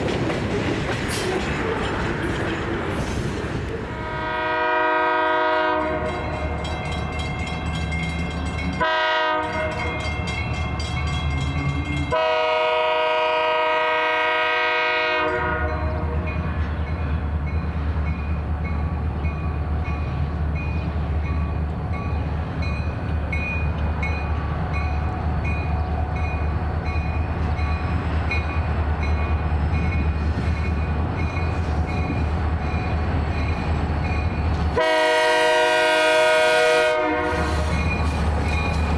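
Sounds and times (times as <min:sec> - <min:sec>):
wheels clicking over rail joints: 0:00.0 - 0:03.8, 0:05.8 - 0:12.2, 0:37.3 - 0:38.9
train passing with low rumble: 0:00.0 - 0:38.9
train horn blasts: 0:04.0 - 0:06.4, 0:08.8 - 0:10.1, 0:12.1 - 0:16.4, 0:34.8 - 0:37.8.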